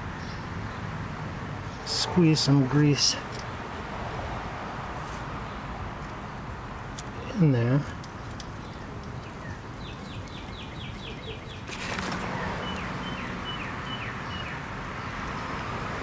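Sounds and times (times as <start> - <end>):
songbird singing: 0.0 - 1.0, 5.3 - 15.9.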